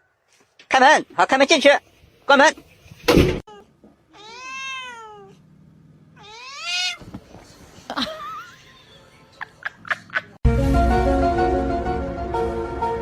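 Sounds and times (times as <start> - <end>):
cat meowing: 3.5 - 5.4, 6.2 - 7.0.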